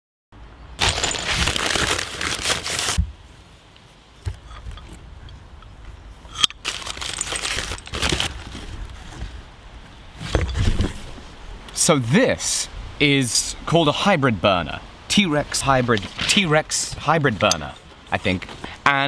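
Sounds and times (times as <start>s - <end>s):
packaging crinkling and tearing: 0.8s - 3.0s, 6.6s - 9.0s.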